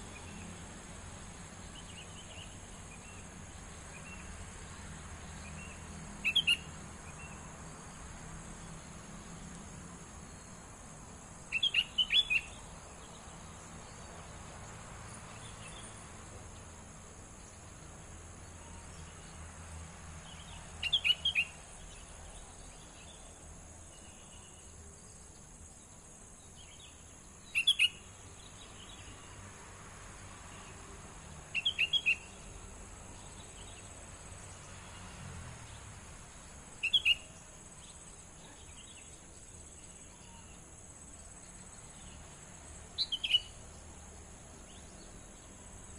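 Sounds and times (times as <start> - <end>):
high insect trill: 0.0 - 45.9
young songbird chirping: 5.4 - 7.4, 11.5 - 14.2, 20.2 - 23.3, 26.5 - 29.2, 31.5 - 32.5, 36.8 - 40.6, 42.9 - 43.9.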